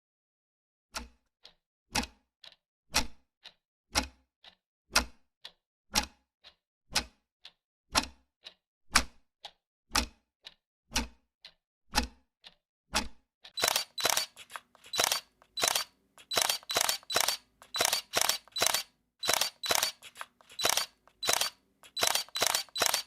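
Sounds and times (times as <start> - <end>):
camera shutter clicking: 13.6 - 23.0.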